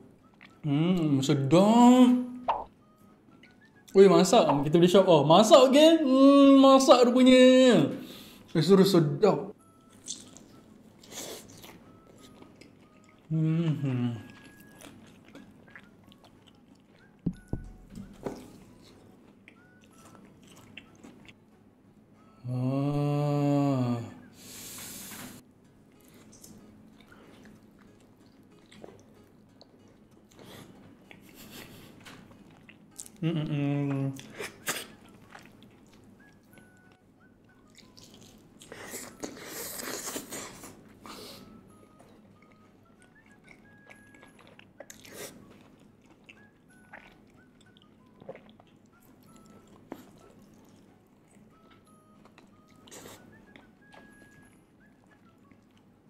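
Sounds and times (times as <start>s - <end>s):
quiet chewing with wet clicks: 0.2s - 0.7s, 9.8s - 13.3s, 14.2s - 21.4s, 25.9s - 33.2s, 33.9s - 40.2s, 41.9s - 56.0s
man humming: 13.3s - 14.4s, 22.4s - 24.2s, 33.2s - 34.2s.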